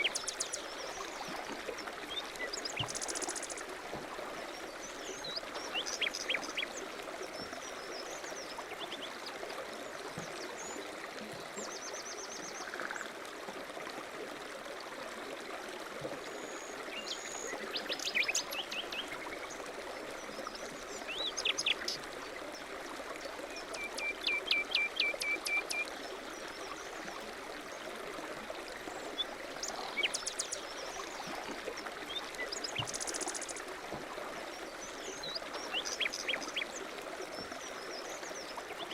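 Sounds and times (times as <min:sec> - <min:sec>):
flowing water rushing: 0:00.0 - 0:38.9
small birds chirping and trilling: 0:29.6 - 0:30.8.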